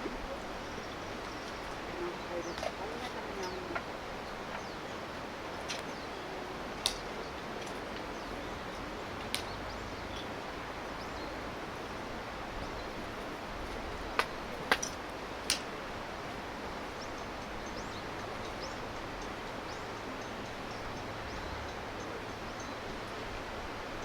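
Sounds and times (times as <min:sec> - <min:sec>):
steady background hiss: 0:00.0 - 0:24.0
wood fire pops: 0:14.2 - 0:15.7.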